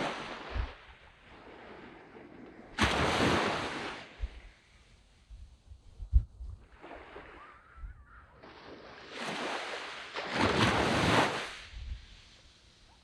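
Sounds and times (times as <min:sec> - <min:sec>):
wave washing up sand beach: 0:00.0 - 0:04.5, 0:08.4 - 0:13.0
wind thump on microphone: 0:00.5 - 0:00.8, 0:04.2 - 0:04.5, 0:05.3 - 0:06.7.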